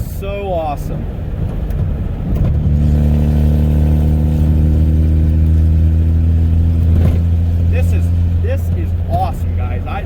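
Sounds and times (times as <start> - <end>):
pickup truck engine exhaust: 2.4 - 9.8.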